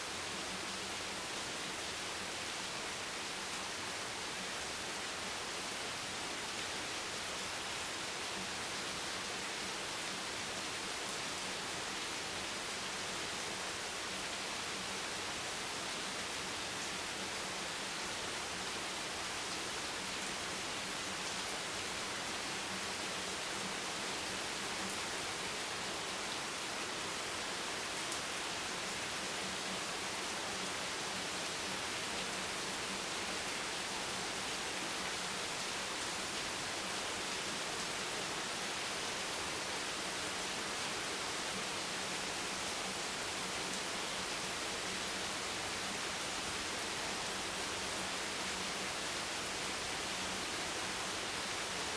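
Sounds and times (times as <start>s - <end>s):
steady rain: 0.0s - 51.9s.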